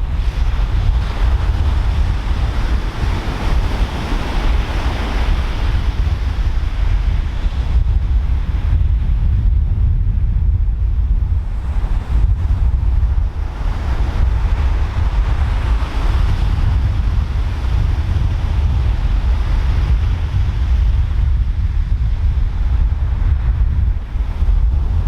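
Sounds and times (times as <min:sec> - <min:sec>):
wind buffeting microphone: 0:00.0 - 0:25.0
ocean surf breaking: 0:00.1 - 0:07.8, 0:11.5 - 0:20.3.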